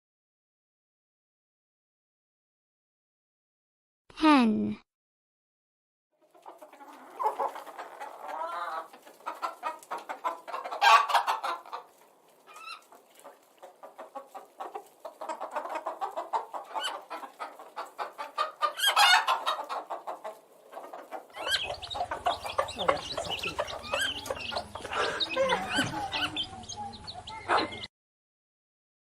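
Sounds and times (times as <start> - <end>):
hen clucking: 6.2 - 27.9.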